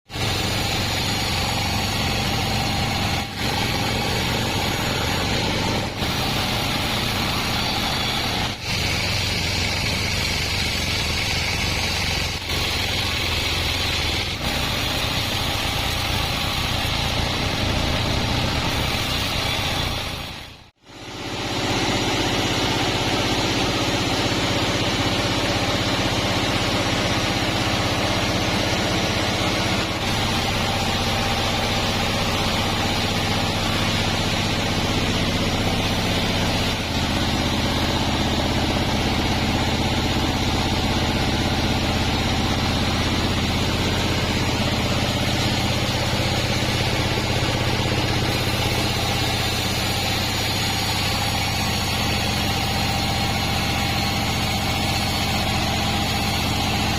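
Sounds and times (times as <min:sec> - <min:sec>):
bandsaw machinery running: 0:00.1 - 0:56.9.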